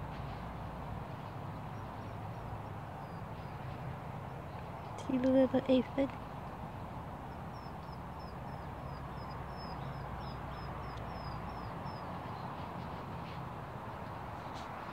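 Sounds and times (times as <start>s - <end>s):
steady low rumble: 0.0s - 14.9s
small bird chirping: 1.7s - 6.1s, 7.2s - 12.7s.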